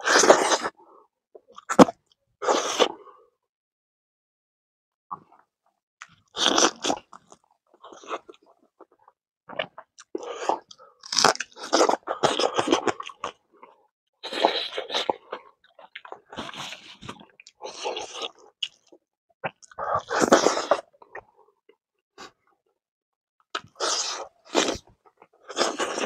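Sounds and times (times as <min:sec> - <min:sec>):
chewing and crunching food: 0:05.1 - 0:21.6, 0:23.5 - 0:26.0.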